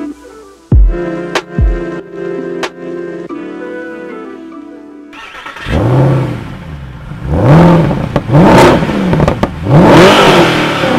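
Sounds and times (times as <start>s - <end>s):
car engine revving: 5.2s - 10.9s.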